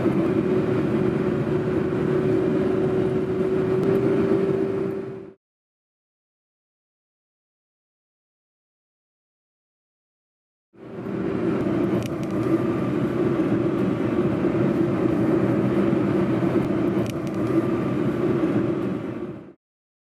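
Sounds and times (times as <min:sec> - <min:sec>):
car running along road: 0:00.0 - 0:05.4, 0:10.8 - 0:19.6.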